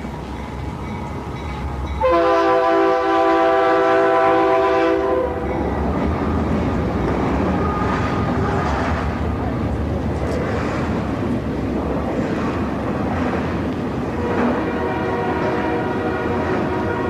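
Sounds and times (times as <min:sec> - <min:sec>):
moving train rumble: 0:00.0 - 0:17.0
locomotive air horn blast: 0:02.0 - 0:05.5, 0:14.2 - 0:17.0.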